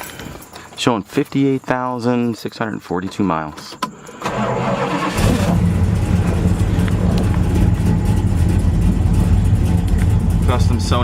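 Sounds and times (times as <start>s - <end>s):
engine starting: 3.8s - 7.4s
engine idling: 3.9s - 11.0s.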